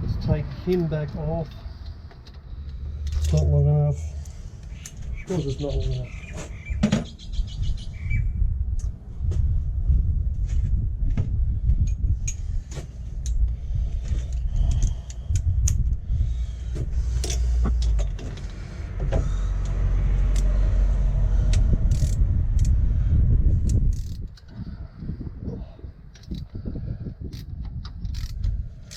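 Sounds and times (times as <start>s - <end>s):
metallic clicks of tools handled: 0.7s - 3.5s, 17.2s - 18.6s, 21.5s - 22.8s, 23.6s - 24.5s, 26.1s - 26.5s, 27.3s - 28.9s
loud low rumble: 7.5s - 12.6s, 13.4s - 26.0s.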